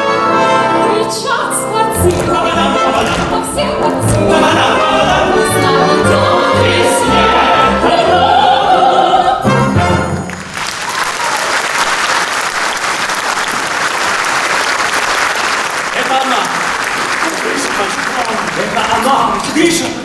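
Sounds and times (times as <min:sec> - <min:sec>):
orchestral accompaniment: 0:00.0 - 0:10.6
woman singing: 0:00.7 - 0:09.4
audience applause: 0:10.3 - 0:20.0.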